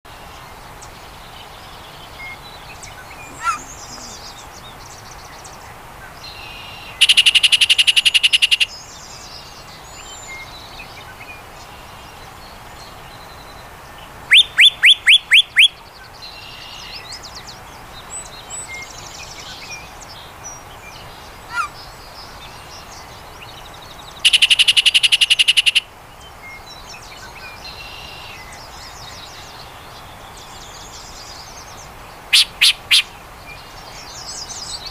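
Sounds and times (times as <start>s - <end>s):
faint chirps of other birds: 0.1s - 34.9s
bird song rattles and whistles: 7.0s - 8.7s, 14.3s - 15.7s, 24.2s - 25.8s, 32.3s - 33.1s.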